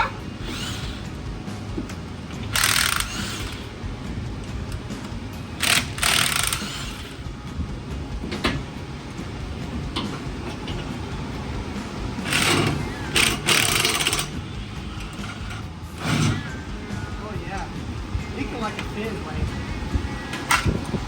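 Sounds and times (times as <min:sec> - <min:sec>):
impact wrench hammering: 0:00.0 - 0:03.9, 0:04.5 - 0:07.2, 0:12.2 - 0:16.5.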